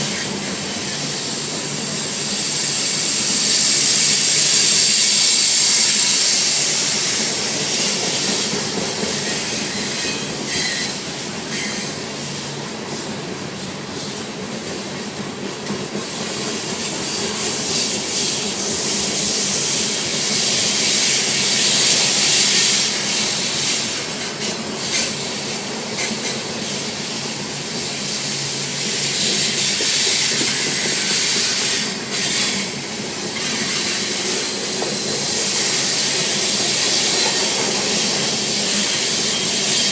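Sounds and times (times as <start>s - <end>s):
rail clicks: 0.0s - 39.9s
train wheels rumbling on rails: 0.0s - 39.9s
wheel squeals: 9.0s - 12.0s.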